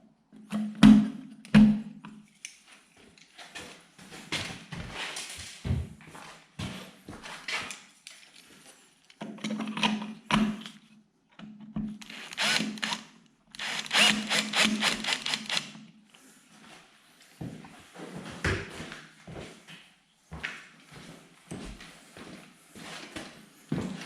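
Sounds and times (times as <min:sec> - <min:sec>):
cordless drill driving screws: 0:12.0 - 0:15.7.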